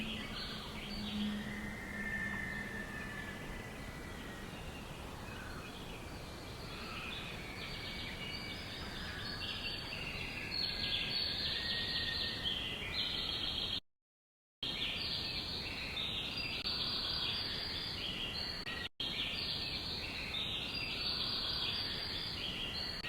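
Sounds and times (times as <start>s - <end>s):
birds chirping: 0.0s - 13.8s.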